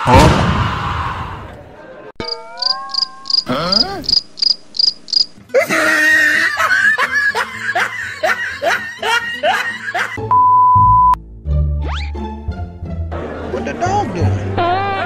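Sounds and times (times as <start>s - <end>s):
sliding cartoon voice sounds: 2.2s - 4.2s
cricket chirping: 2.2s - 5.4s
cartoon voice laughing: 5.6s - 10.2s.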